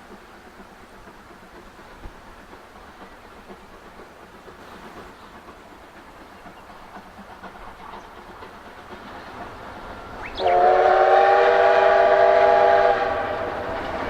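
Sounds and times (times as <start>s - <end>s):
faint train running: 0.0s - 14.0s
steam locomotive whistle: 10.2s - 14.0s.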